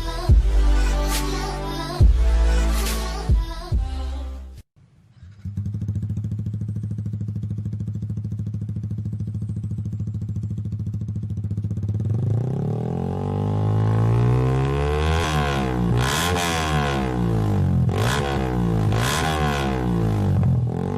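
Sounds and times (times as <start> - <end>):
motorcycle engine idling and revving: 5.0 - 20.9.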